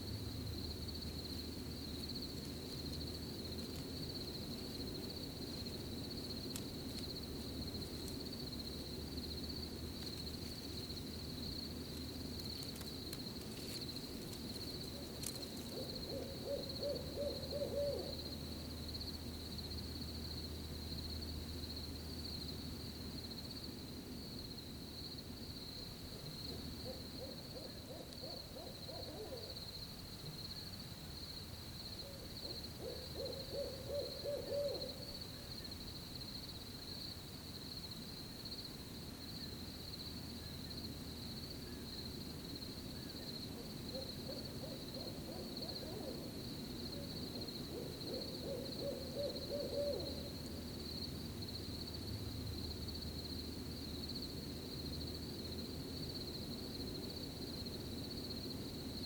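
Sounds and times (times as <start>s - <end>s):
cricket chorus: 0.0s - 59.0s
owl hooting: 14.9s - 18.3s, 26.5s - 29.6s, 32.0s - 35.5s, 43.0s - 46.4s, 47.0s - 50.4s.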